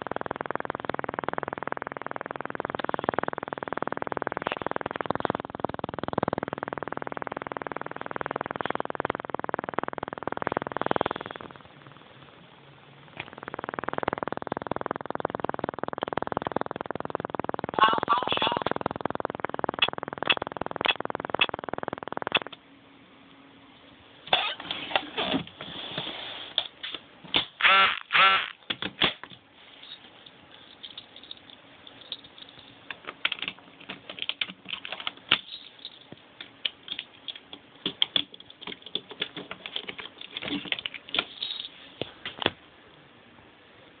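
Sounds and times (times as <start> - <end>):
warbling electronic tones: 0.0 - 12.4, 13.0 - 22.6, 27.6 - 28.6.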